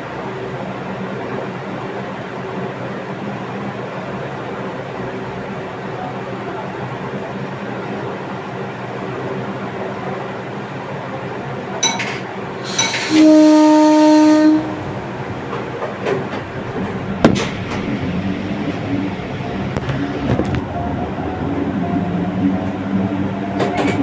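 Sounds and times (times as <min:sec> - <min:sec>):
train rumbling: 0:00.0 - 0:24.0
train horn: 0:12.7 - 0:20.3.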